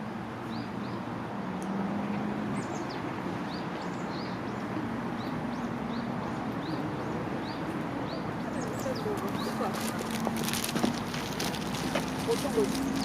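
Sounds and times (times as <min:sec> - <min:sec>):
small birds chirping: 0:02.6 - 0:13.0.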